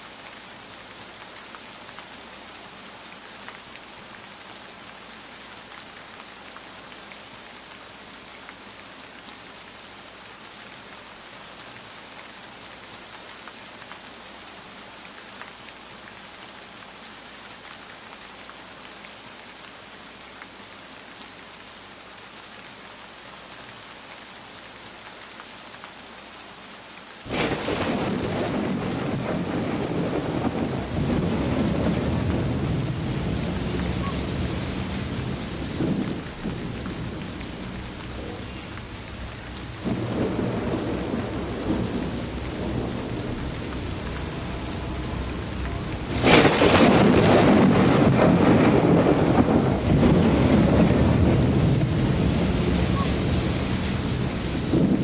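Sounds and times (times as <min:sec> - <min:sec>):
steady rain: 0:00.0 - 0:55.0
raindrops ticking: 0:27.3 - 0:55.0
thunder: 0:27.3 - 0:55.0.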